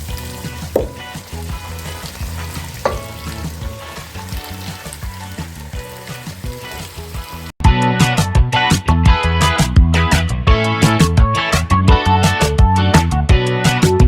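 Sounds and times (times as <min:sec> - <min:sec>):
chicken frying in hot oil: 0:00.0 - 0:07.6
utensil knocking and scraping pan: 0:00.6 - 0:04.7.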